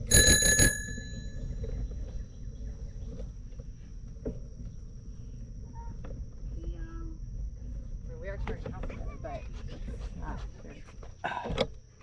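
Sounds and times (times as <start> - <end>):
bicycle bell ringing: 0.0 - 1.5.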